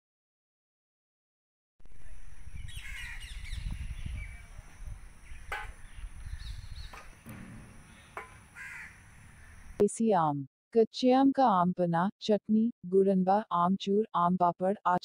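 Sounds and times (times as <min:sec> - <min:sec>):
birds calling: 0:02.0 - 0:09.8.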